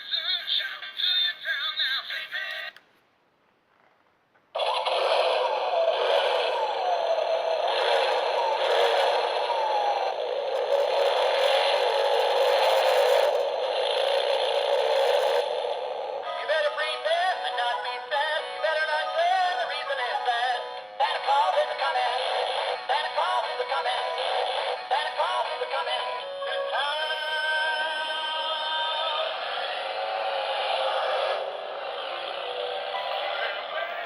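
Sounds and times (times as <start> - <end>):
synthesized singing voice: 0.0 - 2.8, 16.2 - 34.0
tinny electronic christmas tune: 31.4 - 34.0.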